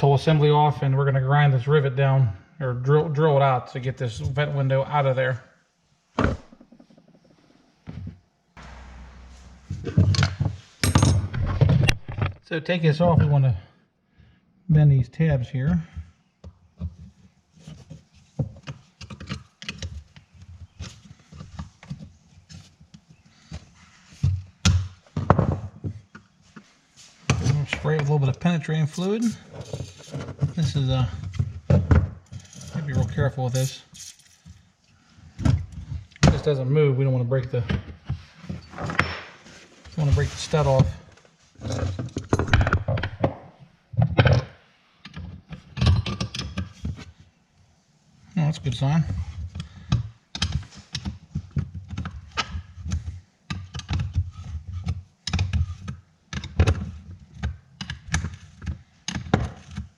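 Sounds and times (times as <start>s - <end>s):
wrench clicking and scraping: 33.5s - 34.4s.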